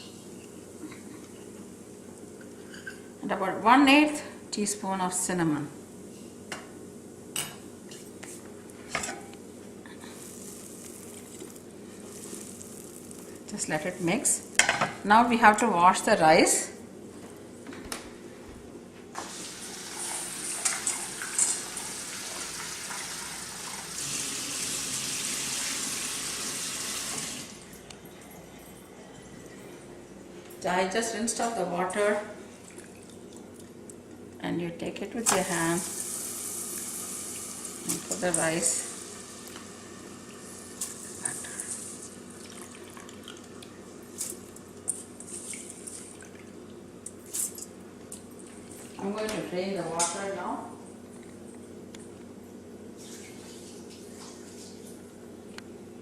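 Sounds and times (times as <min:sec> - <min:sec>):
steady low hum: 0:00.0 - 0:19.2, 0:27.5 - 0:36.0.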